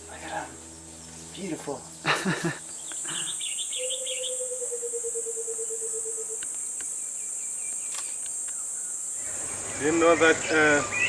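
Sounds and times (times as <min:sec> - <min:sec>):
crickets chirping chorus: 0:00.0 - 0:11.0
lower pulsed insect call: 0:00.0 - 0:11.0
short chirping trill: 0:02.6 - 0:09.8.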